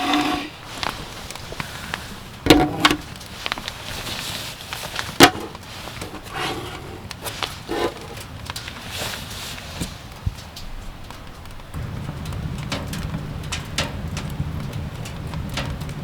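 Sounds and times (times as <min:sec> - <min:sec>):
wood knocks: 0:02.5 - 0:03.1.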